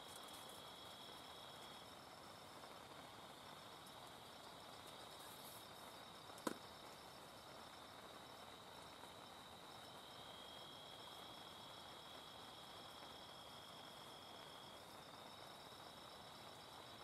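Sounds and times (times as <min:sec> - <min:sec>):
night insects chirring: 0:00.0 - 0:17.0.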